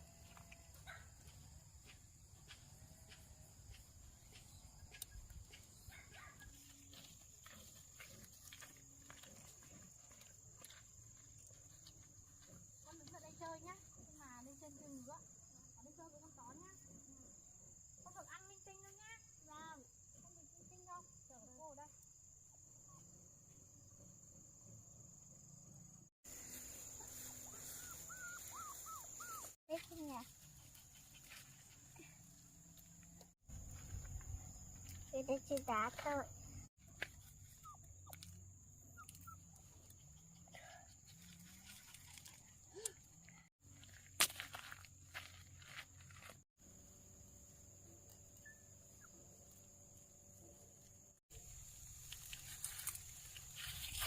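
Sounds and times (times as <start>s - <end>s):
insect drone: 6.6s - 29.6s, 30.2s - 54.0s
dog whimpering: 27.8s - 29.6s.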